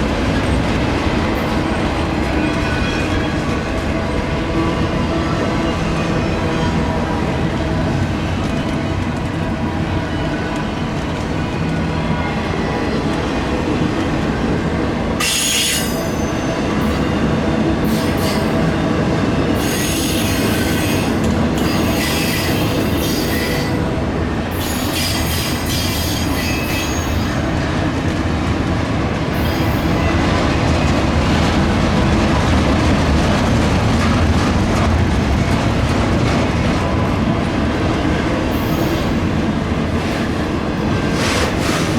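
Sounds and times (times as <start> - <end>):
freight train rumbling past: 0.0 - 41.9.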